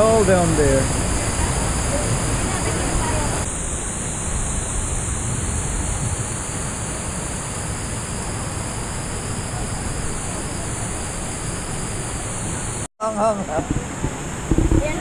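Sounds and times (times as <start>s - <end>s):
low rumble: 13.6s - 15.0s.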